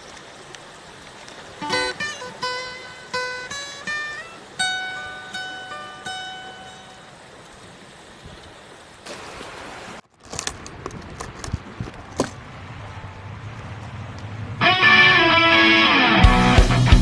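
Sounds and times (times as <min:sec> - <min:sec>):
plucked guitar notes: 0:01.6 - 0:07.2, 0:14.6 - 0:17.0.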